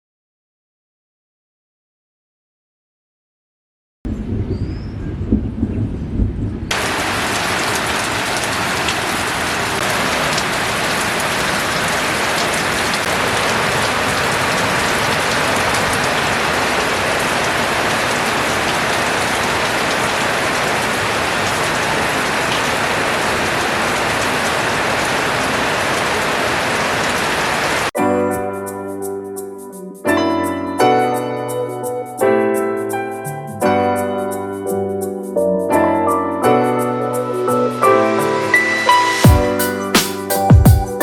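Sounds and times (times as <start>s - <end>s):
heavy rain falling: 6.7s - 27.9s.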